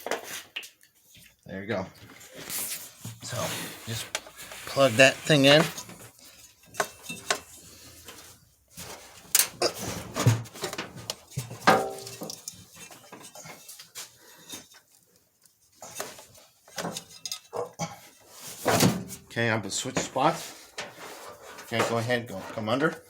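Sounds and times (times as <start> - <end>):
parts clicking and rattling: 5.5 - 14.0, 15.8 - 17.8.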